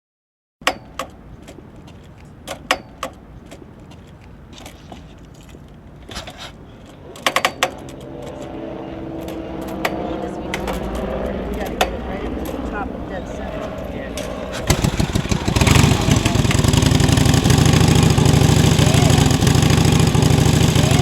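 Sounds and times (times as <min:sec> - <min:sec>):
low background rumble: 0:06.6 - 0:21.0
dense rising sound: 0:06.9 - 0:18.6.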